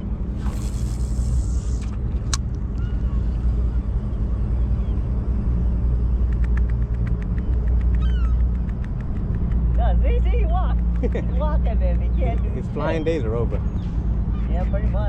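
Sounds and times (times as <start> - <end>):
low engine rumble: 0.0 - 15.0
faint clicks: 6.3 - 9.8
sharp click: 6.3 - 9.8.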